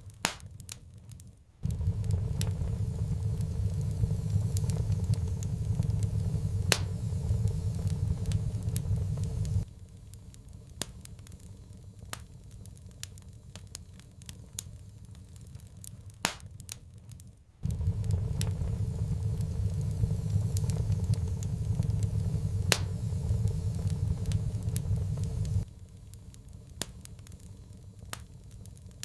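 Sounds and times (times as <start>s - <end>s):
wood fire crackling: 0.0s - 29.0s
low rumble: 1.6s - 9.8s, 17.6s - 26.5s.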